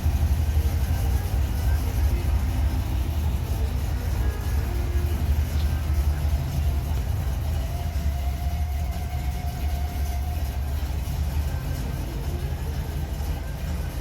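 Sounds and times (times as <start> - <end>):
car engine rumbling: 0.0 - 14.0.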